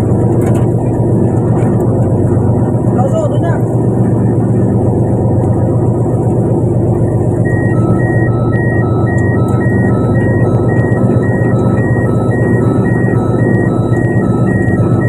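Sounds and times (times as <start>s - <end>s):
boat engine droning: 0.0s - 15.0s
two-tone electronic alarm beeping: 7.4s - 15.0s.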